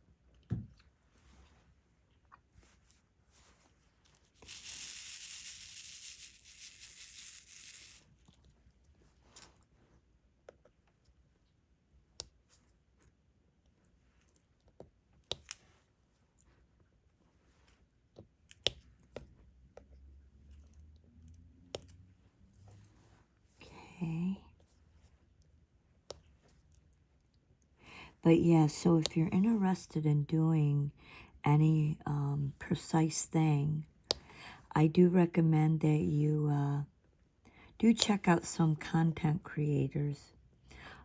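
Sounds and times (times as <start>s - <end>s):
small clicks and taps: 18.1s - 19.9s.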